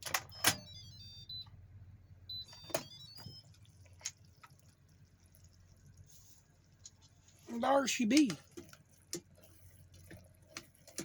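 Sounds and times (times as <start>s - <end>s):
low steady hum: 0.0s - 11.0s
high electronic beeps: 0.3s - 1.5s, 2.3s - 3.5s.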